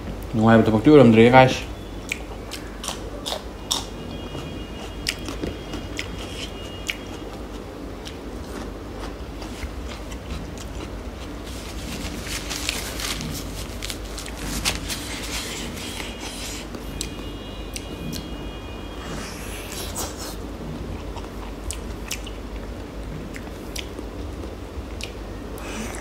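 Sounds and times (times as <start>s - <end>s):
crisp crunching chewing: 2.1s - 18.3s.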